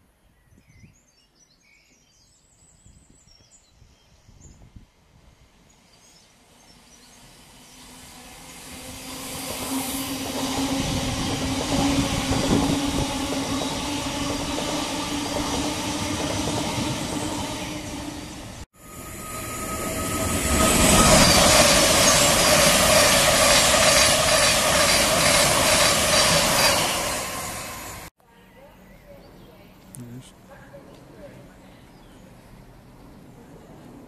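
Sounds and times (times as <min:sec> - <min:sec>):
low train hum: 0:04.0 - 0:28.1, 0:29.2 - 0:34.0
train wheels rushing on rail: 0:06.3 - 0:28.1
birds chirping: 0:28.6 - 0:33.8.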